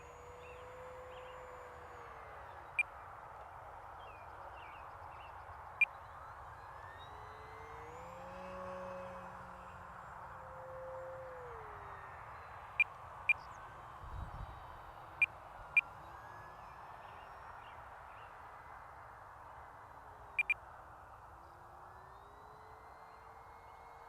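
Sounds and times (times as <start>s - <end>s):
model plane electric motor whine: 0.0s - 3.7s, 6.4s - 18.6s.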